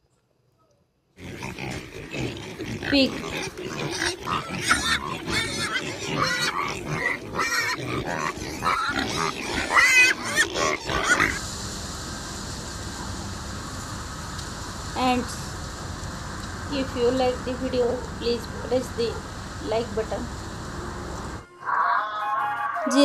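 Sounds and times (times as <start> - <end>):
pigs squealing and grunting: 1.2 - 11.4
steady hiss: 11.2 - 21.4.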